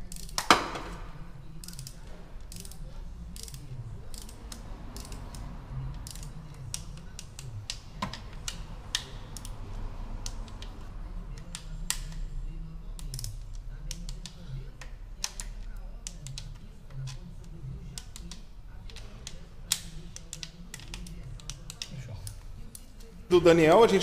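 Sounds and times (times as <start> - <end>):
ratchet wrench clicking: 0.0 - 0.6, 1.6 - 9.6, 13.0 - 17.2
metal tool clicks: 1.6 - 9.6.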